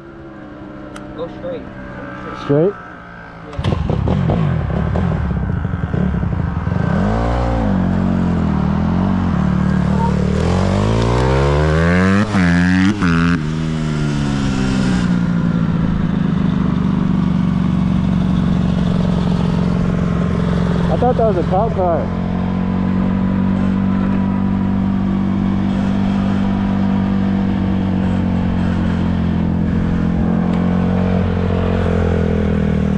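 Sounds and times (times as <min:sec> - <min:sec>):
dirt bike engine revving: 0:01.0 - 0:16.1, 0:17.2 - 0:32.9.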